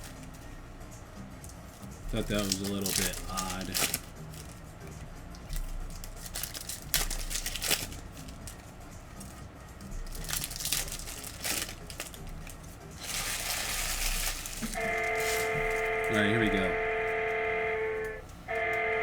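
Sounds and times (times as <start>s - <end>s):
plastic packaging crinkling: 2.2s - 4.6s, 5.5s - 8.6s, 10.0s - 15.9s.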